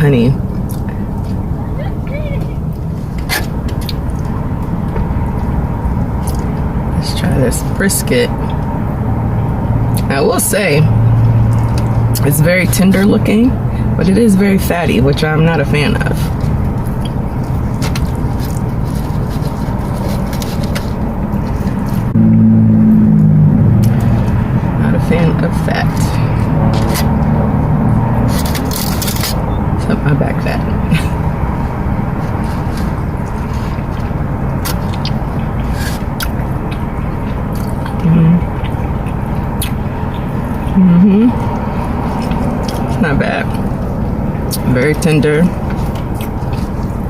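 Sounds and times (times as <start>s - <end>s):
low hum: 0.0s - 47.0s
low rumble: 0.0s - 47.0s
person chewing: 6.2s - 6.6s, 16.2s - 22.2s, 28.2s - 29.5s, 32.0s - 44.6s, 45.6s - 47.0s
wet mouth clicks: 37.5s - 41.6s
person humming: 38.0s - 38.4s, 40.8s - 41.4s.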